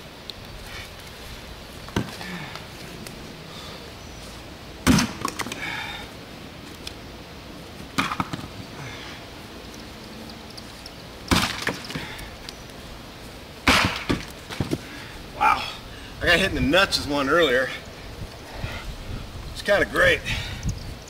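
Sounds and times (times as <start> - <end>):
axe chopping wood: 4.8 - 5.6, 11.3 - 12.0, 13.6 - 14.8.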